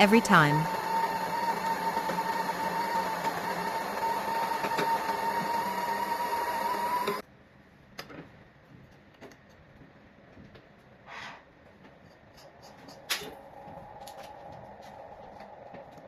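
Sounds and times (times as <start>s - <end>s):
coffee grinder motor whining: 0.1s - 7.2s.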